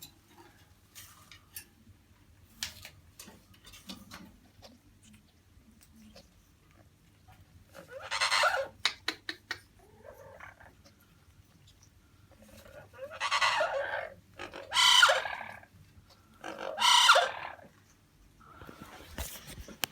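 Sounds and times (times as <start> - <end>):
parrot calling loudly: 7.8 - 8.8, 12.8 - 15.7, 16.4 - 17.7.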